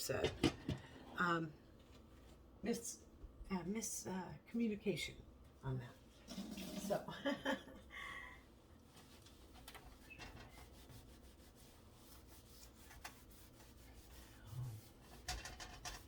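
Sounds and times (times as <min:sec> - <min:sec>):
dishes rubbing and clicking: 0:12.5 - 0:14.2, 0:14.9 - 0:16.0.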